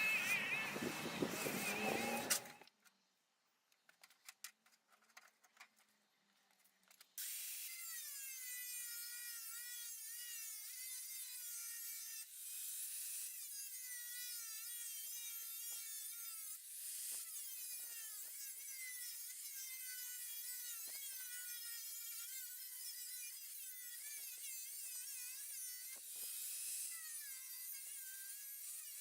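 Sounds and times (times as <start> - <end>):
power tool whining: 0.0 - 2.7.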